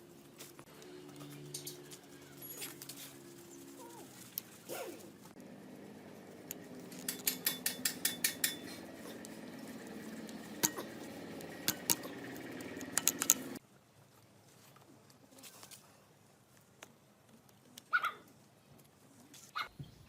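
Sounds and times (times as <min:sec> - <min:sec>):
steady low hum: 0:00.0 - 0:13.6
metal tools clinking: 0:06.8 - 0:09.3, 0:10.4 - 0:13.6.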